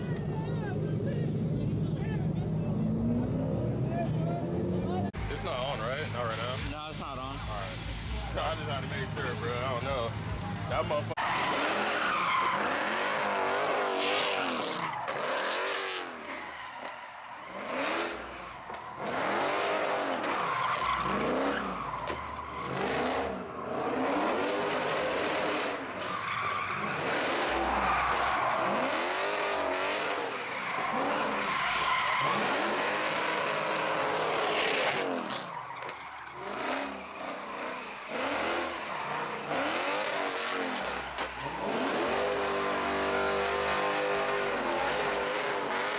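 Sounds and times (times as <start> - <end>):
car engine revving: 0.0 - 45.9
tyres squealing and skidding: 0.0 - 45.9.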